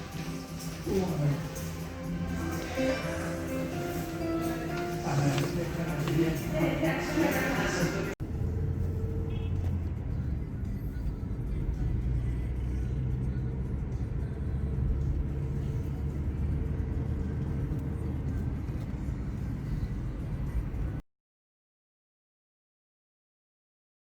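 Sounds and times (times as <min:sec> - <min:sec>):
faint music: 0:00.0 - 0:08.2, 0:09.8 - 0:21.0
car cabin rumble: 0:08.0 - 0:21.0.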